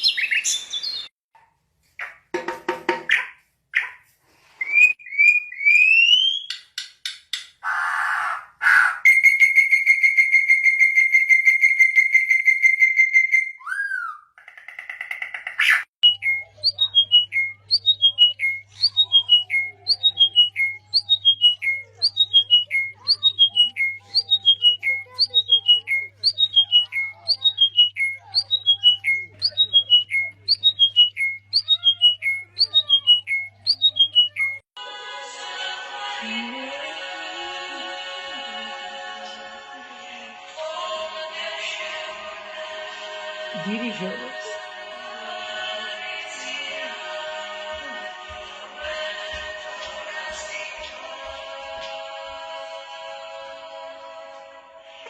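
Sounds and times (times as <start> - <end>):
whistled bird-like calls: 7.6 - 14.3, 15.5 - 34.6.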